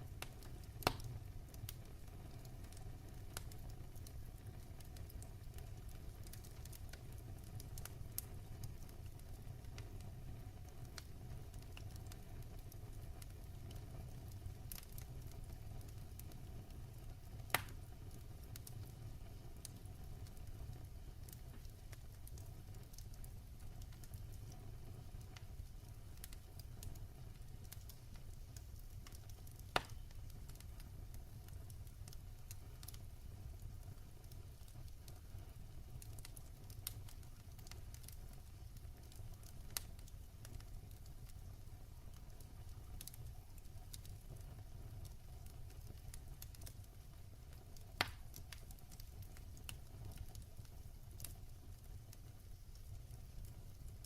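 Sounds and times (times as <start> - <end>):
low rumble of flames: 0.0 - 54.0
wood fire crackling: 0.0 - 54.0.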